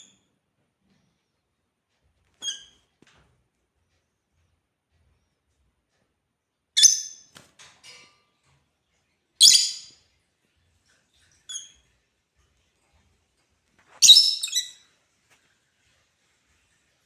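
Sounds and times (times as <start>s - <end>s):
lovebirds chirping: 14.0s - 14.8s.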